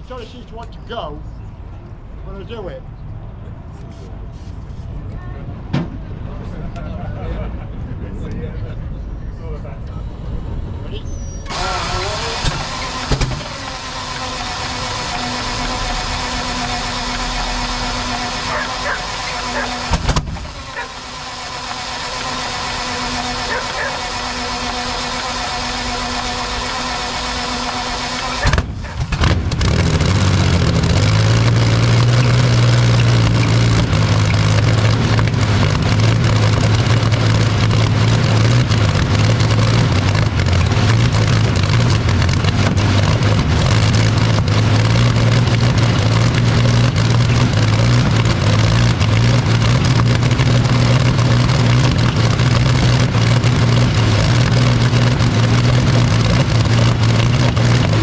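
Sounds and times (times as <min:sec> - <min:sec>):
engine droning: 0:00.0 - 0:58.0
engine pop: 0:11.4 - 0:31.1.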